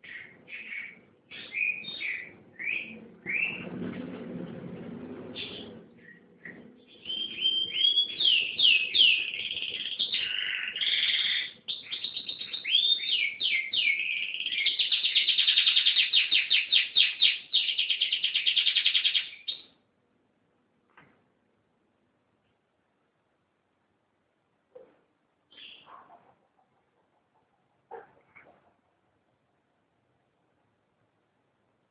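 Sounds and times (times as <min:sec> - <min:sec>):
canary singing: 0:00.0 - 0:03.9, 0:05.4 - 0:19.8, 0:25.5 - 0:26.0.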